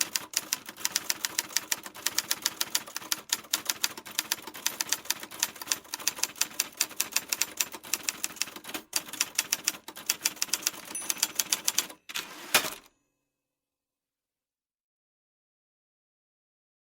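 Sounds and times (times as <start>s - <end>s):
typewriter key strikes: 10.4s - 12.9s.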